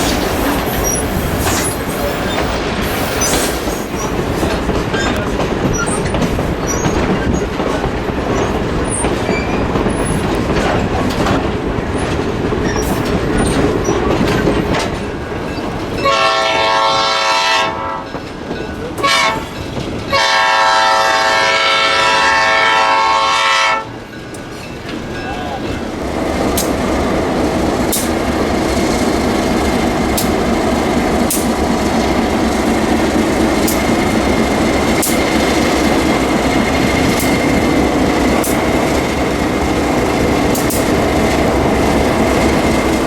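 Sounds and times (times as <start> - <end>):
train rumbling on rails: 0.0 - 43.0
locomotive horn blasts: 16.0 - 18.1, 19.0 - 23.9.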